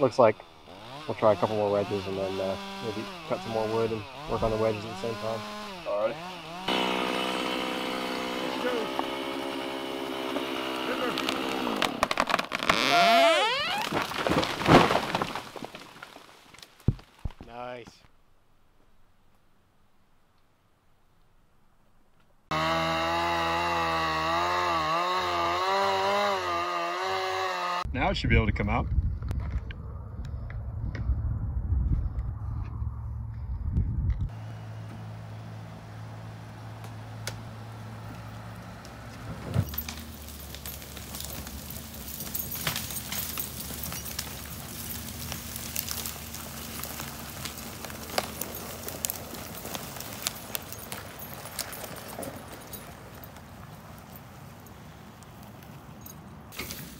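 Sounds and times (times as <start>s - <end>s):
chainsaw cutting wood: 0.0s - 16.2s, 22.5s - 27.9s, 34.3s - 52.3s
engine running at low speed: 29.4s - 40.0s.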